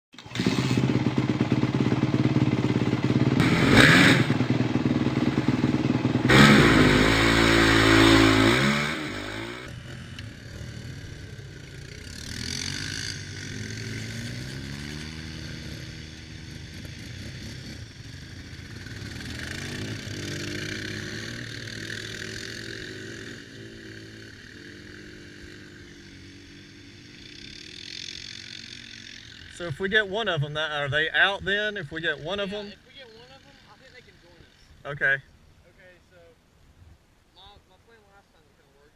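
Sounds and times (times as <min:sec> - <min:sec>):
dirt bike engine revving: 0:00.1 - 0:30.5.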